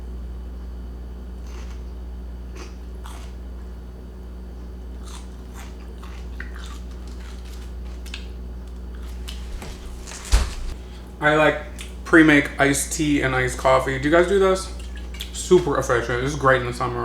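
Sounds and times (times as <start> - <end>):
steady low hum: 0.0 - 17.0
person chewing crunchy food: 1.4 - 3.7, 4.9 - 8.3.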